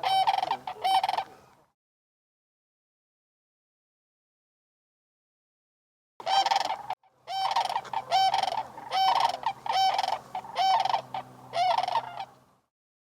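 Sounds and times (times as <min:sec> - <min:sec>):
cranes rattling bugle calls: 0:00.0 - 0:01.4, 0:06.2 - 0:12.4.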